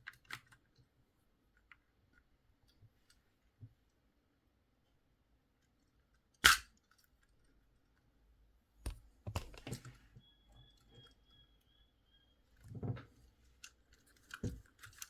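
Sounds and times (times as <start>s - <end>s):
small plastic clicks and rattles: 0.0s - 0.9s, 12.8s - 15.0s
loud sharp plastic snap: 6.4s - 6.8s
plastic toy parts handled: 13.6s - 15.0s.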